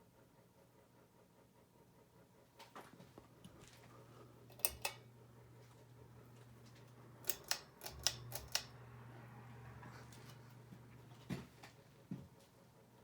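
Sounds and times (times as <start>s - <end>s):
ceiling fan motor hum: 2.0s - 13.0s
sharp clicks: 7.2s - 8.8s.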